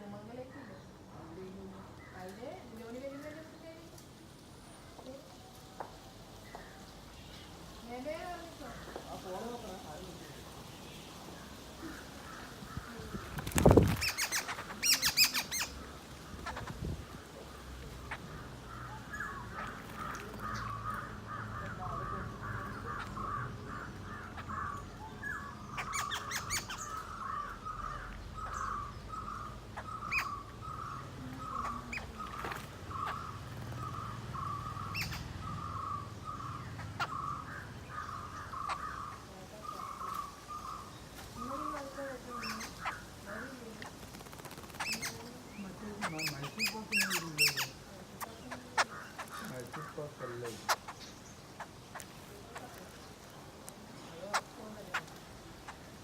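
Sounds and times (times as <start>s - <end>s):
bird calling repeated notes: 12.2s - 16.8s, 18.0s - 45.3s, 46.0s - 50.0s.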